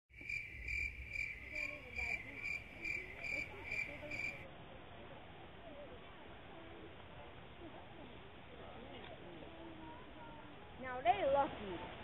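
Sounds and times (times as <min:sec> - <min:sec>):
cricket chirping: 0:00.2 - 0:04.4.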